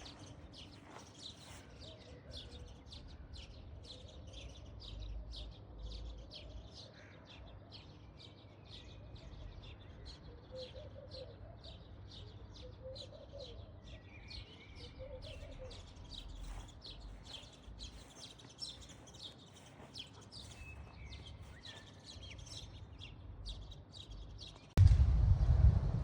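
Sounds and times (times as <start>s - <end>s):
birds chirping rapidly: 0.0s - 24.8s
faint low rumble: 24.8s - 26.0s.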